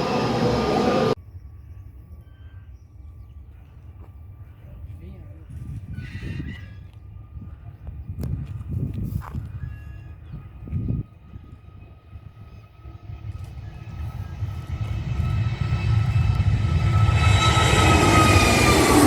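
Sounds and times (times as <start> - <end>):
jet engines whine and roar: 0.0 - 1.2, 3.5 - 19.0
wind buffeting microphone: 4.3 - 19.0.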